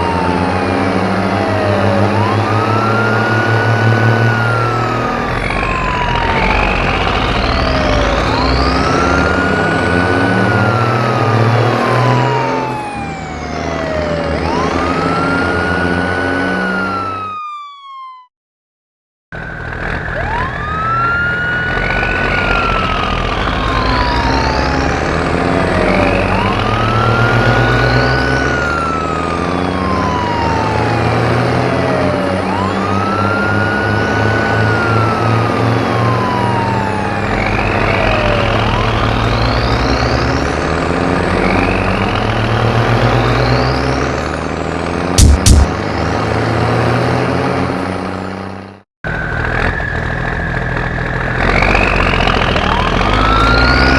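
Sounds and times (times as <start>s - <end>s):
low vehicle rumble: 0.0s - 17.0s, 19.4s - 53.9s
wailing siren: 0.0s - 18.3s, 19.3s - 53.9s.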